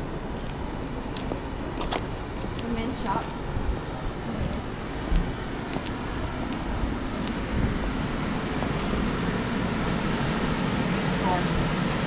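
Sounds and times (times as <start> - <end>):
traffic rumble: 0.0 - 12.0
wind buffeting microphone: 0.0 - 12.0.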